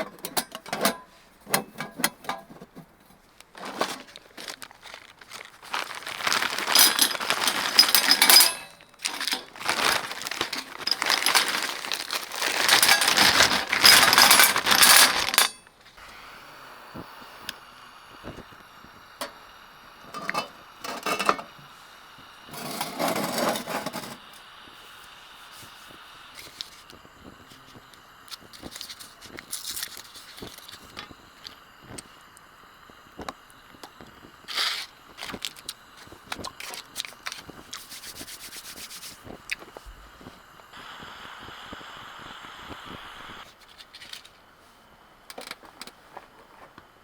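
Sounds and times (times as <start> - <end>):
metal items clinking and rattling: 3.6 - 15.7.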